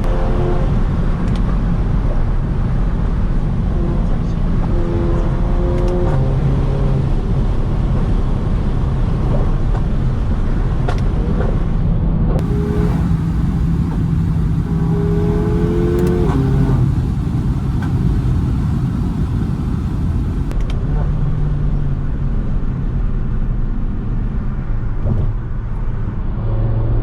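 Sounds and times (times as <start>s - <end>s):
car engine and exhaust droning: 12.4s - 20.6s
sharp exhaust pops: 12.4s - 20.6s.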